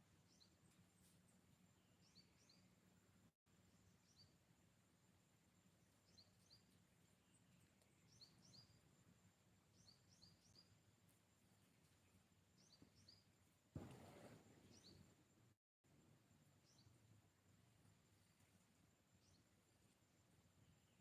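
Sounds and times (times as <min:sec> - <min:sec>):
faint high-pitched hum: 0:00.0 - 0:21.0
bird chirps: 0:06.0 - 0:08.8, 0:09.7 - 0:10.8, 0:12.6 - 0:15.2.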